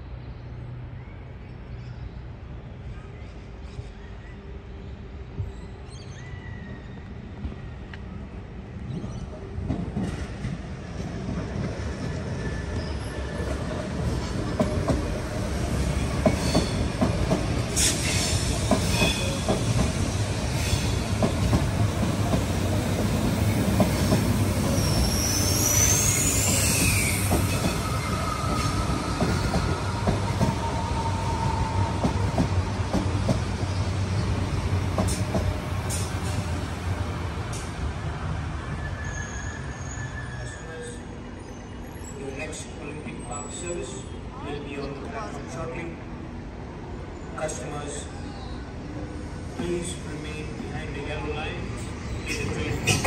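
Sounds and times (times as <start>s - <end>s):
electric train rumbling past: 2.2s - 53.0s
high wheel squeal: 24.6s - 31.8s, 38.6s - 42.2s.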